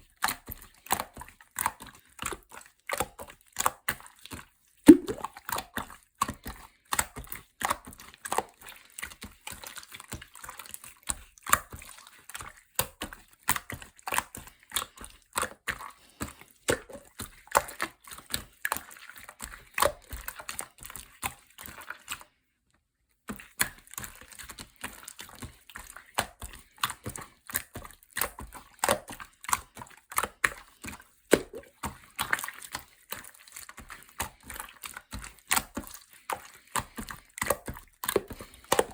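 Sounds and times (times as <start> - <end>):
slime squishing with sticky pops: 0.2 - 22.2, 23.2 - 38.9.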